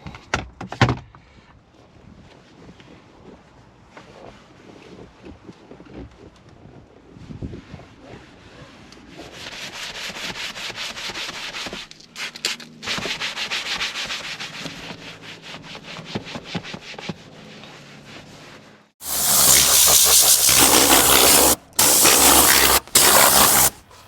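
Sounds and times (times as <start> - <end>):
stiff brush scrubbing: 19.0 - 24.0.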